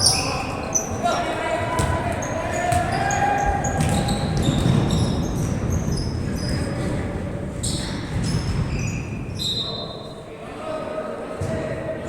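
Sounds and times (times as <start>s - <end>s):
background voices and movement: 0.0s - 12.0s
sneakers squeaking on court: 1.8s - 6.6s.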